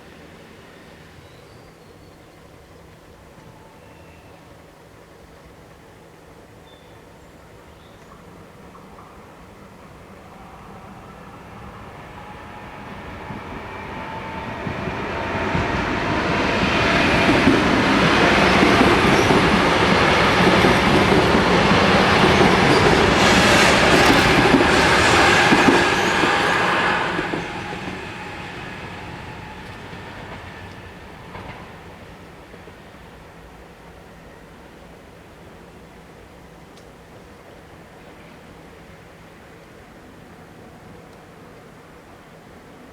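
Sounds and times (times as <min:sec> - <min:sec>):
electric train passing: 0:00.0 - 0:06.6, 0:07.5 - 0:42.8
wheels clattering over rails: 0:17.2 - 0:28.2.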